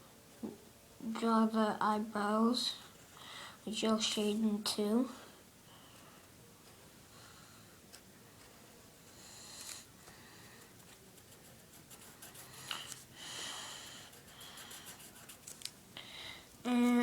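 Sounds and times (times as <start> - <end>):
pencil scratching on paper: 11.2 - 12.7, 14.0 - 15.5.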